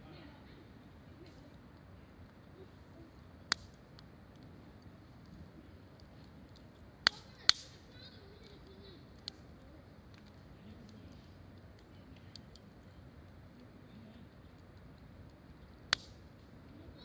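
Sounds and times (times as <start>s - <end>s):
campfire crackling and popping: 0.1s - 17.0s.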